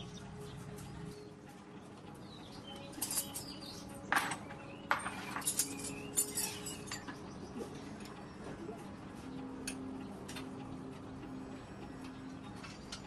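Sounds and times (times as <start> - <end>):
birds chirping: 0.0 - 13.0
metallic clinks and knocks: 2.8 - 7.2.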